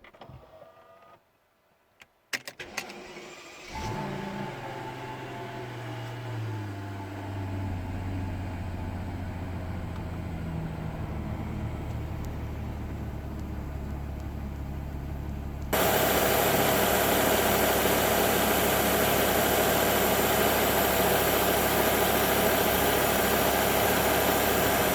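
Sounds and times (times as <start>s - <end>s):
car engine idling: 5.4s - 24.9s.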